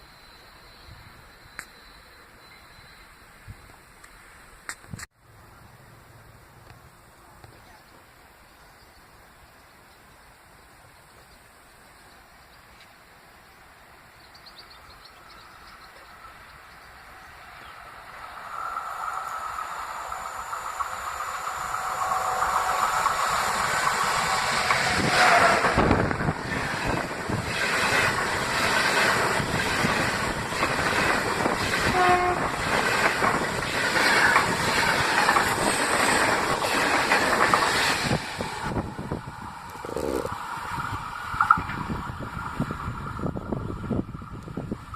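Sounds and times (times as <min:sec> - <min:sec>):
train wheels clacking over rail joints: 0:20.1 - 0:38.8.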